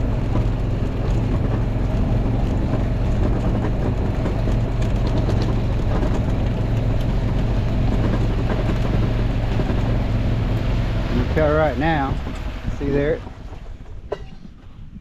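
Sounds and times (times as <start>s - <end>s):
vehicle engine running: 0.0s - 14.6s.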